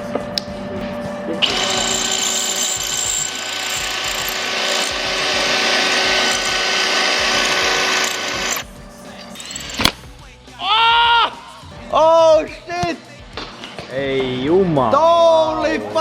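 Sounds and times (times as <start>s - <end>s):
power tool whining on steel: 1.4s - 8.6s, 9.4s - 9.9s.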